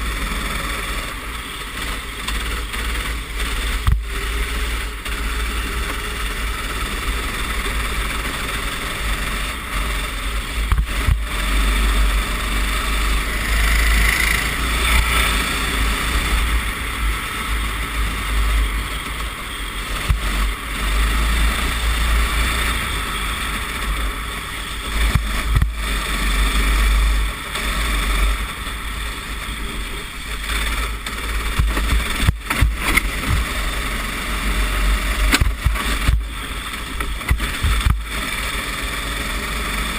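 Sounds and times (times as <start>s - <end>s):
kart engine running: 0.0s - 39.9s
wind rumble on microphone: 9.0s - 38.8s.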